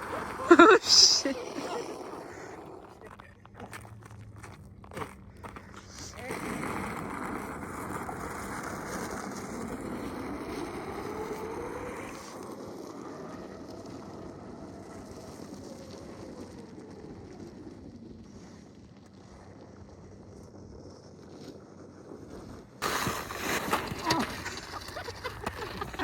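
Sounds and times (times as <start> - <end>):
hiss: 22.8 - 23.9.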